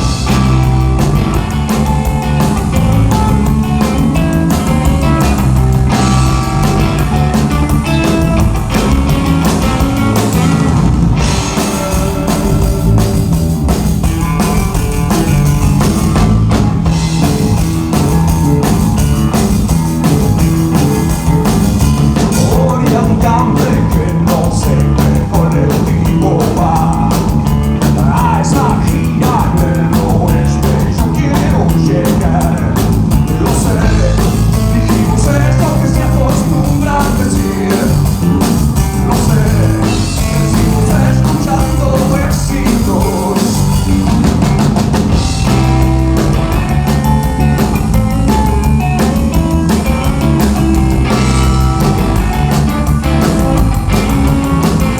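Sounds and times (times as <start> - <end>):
bass guitar: 0.0 - 54.9
drum kit: 0.0 - 54.9
guitars: 0.0 - 54.9
person singing: 22.3 - 44.1.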